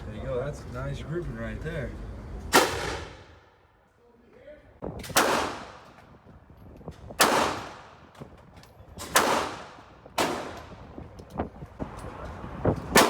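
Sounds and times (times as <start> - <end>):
gunshots with ringing tail: 2.5 - 3.4, 5.1 - 5.8, 7.2 - 8.0, 9.1 - 10.7
faint distant gunshots: 2.5 - 3.6, 7.2 - 8.0, 9.2 - 10.8.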